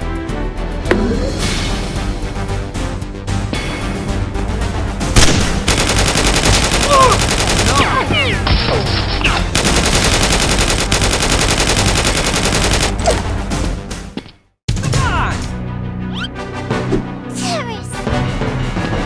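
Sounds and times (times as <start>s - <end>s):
automatic gunfire: 5.2s - 13.2s.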